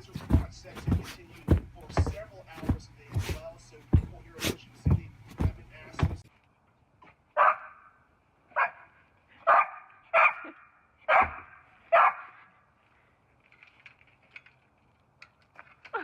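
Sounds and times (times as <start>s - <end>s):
dog barking: 7.4s - 7.9s, 8.6s - 12.4s.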